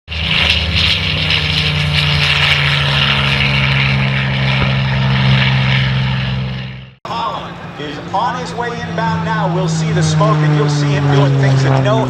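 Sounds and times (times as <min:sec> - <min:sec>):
plane engine and propeller: 0:00.1 - 0:12.0.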